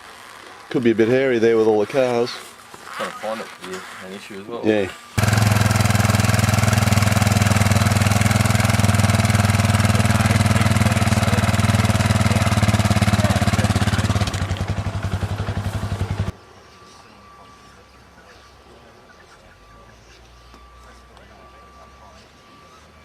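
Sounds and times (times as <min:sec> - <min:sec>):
motorcycle engine running: 0:05.2 - 0:16.3.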